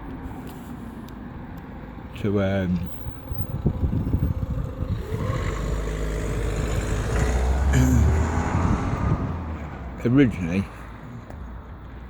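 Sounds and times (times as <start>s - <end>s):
motor vehicle rumbling past: 3.0s - 11.2s.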